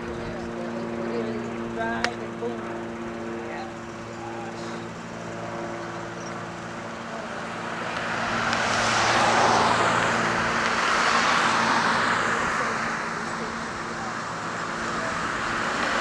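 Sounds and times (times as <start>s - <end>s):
engine idling: 0.0s - 16.0s
vehicle passing by: 0.0s - 16.0s.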